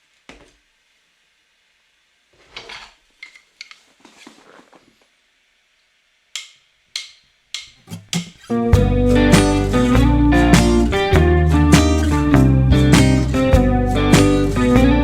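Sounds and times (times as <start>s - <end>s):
rustling: 2.3s - 5.2s
sharp clicks and knocks: 6.4s - 8.5s.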